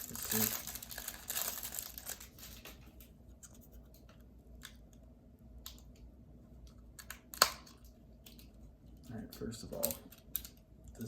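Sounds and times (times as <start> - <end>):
crinkly plastic wrapper crackling: 0.0 - 3.1.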